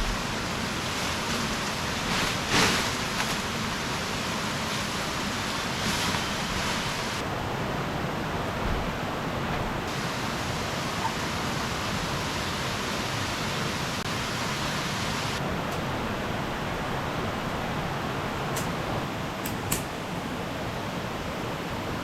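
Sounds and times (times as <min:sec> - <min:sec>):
heavy rain: 0:00.0 - 0:19.4
rushing stream water: 0:00.0 - 0:19.4.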